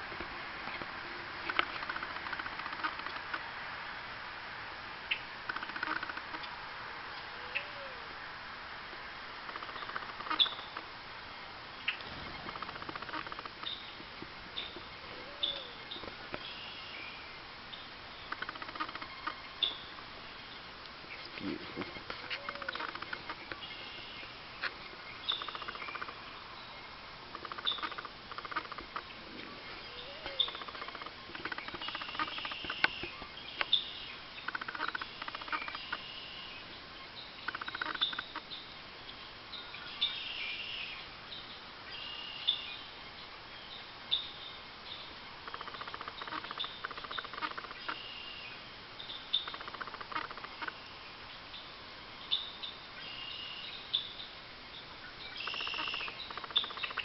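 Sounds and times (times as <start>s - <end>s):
rapid bird ticking: 0.6s - 3.4s, 5.1s - 6.5s, 9.4s - 11.0s, 11.8s - 16.6s, 17.8s - 20.0s, 21.1s - 26.5s, 27.2s - 29.2s, 29.9s - 36.4s, 37.4s - 38.5s, 45.3s - 50.9s, 55.3s - 57.0s
bird chirps: 9.6s - 10.8s, 11.8s - 57.0s.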